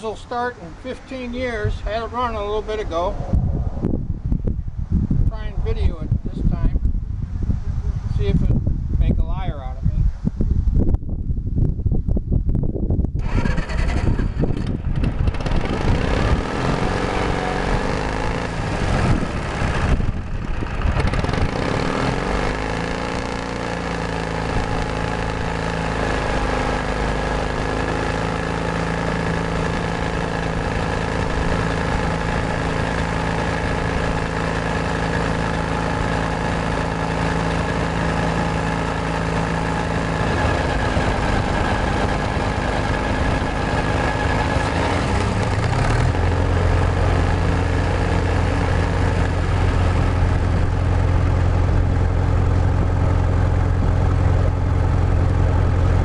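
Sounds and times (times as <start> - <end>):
diesel engine starting and running: 13.1 - 56.0.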